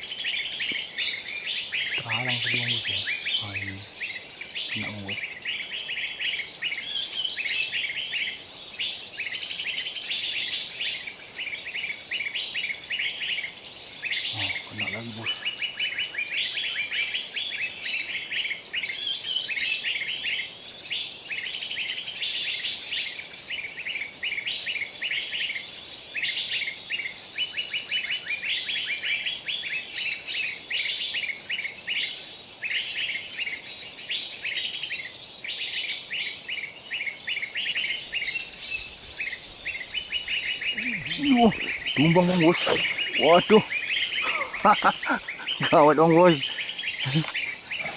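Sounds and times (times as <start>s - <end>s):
high-pitched insect drone: 0.0s - 5.7s, 6.4s - 15.6s, 37.0s - 47.9s
small birds chirping: 0.0s - 47.9s.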